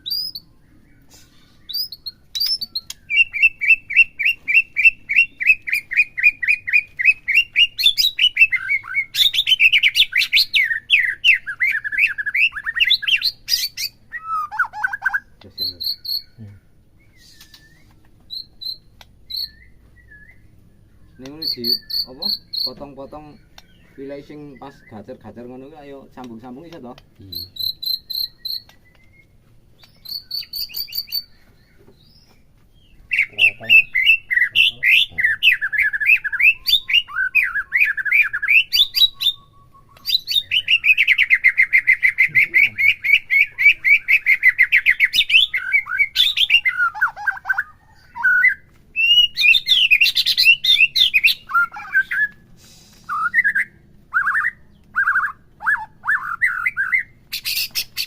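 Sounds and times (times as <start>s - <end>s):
bird singing varied song: 0.0s - 58.0s.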